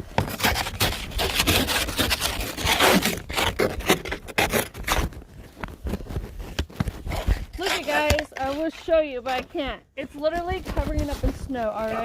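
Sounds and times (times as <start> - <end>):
ice scraper on car window: 0.2 - 5.1.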